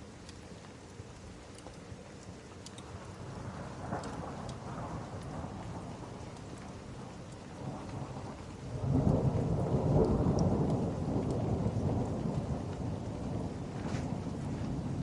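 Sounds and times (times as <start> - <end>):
rain hissing: 0.0 - 15.0
rolling thunder: 3.2 - 15.0.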